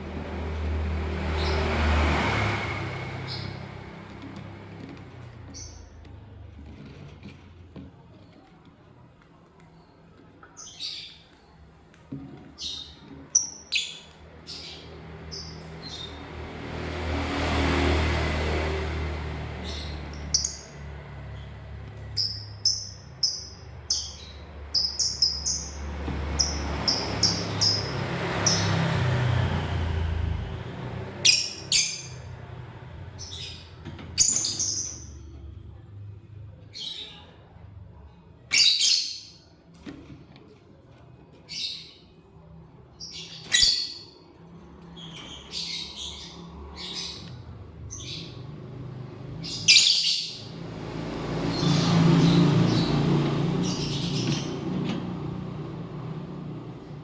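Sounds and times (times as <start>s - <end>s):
lovebirds chirping and squawking: 1.3s - 7.0s, 9.8s - 11.7s, 12.3s - 16.4s, 19.5s - 29.2s, 31.2s - 35.5s, 36.7s - 37.6s, 38.5s - 39.5s, 41.3s - 42.3s, 43.0s - 55.1s.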